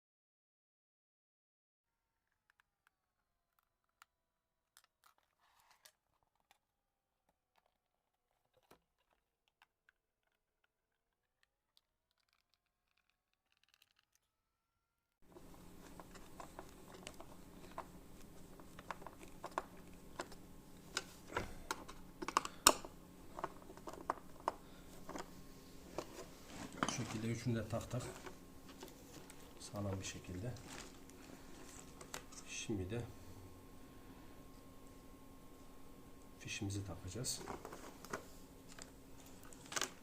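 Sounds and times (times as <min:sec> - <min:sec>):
steady low hum: 0:15.3 - 0:40.0.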